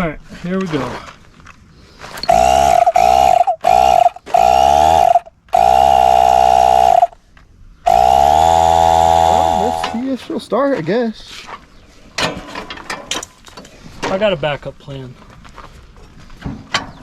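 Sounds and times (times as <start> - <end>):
small electric motor whining: 2.2 - 7.2, 7.9 - 10.1.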